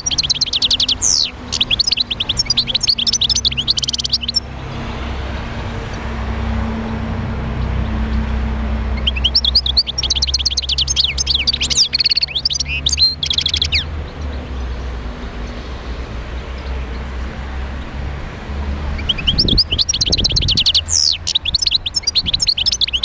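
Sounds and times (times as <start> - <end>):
goldfinch twittering song: 0.0 - 4.9, 7.6 - 15.7, 18.9 - 23.0.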